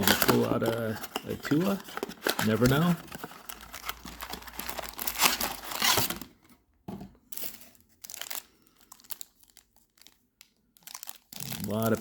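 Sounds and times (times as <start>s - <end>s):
plastic and cardboard crinkling: 0.0s - 12.0s.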